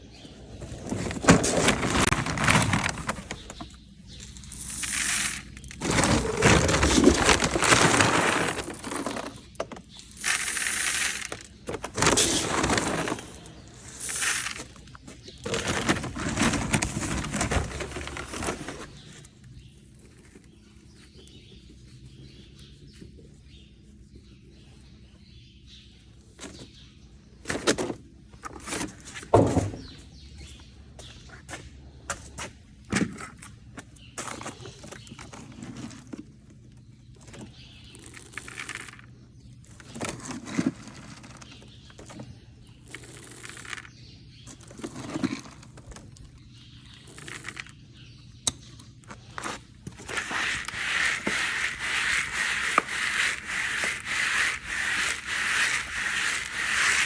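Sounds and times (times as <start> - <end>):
dry feed poured into buckets: 50.0 - 57.0.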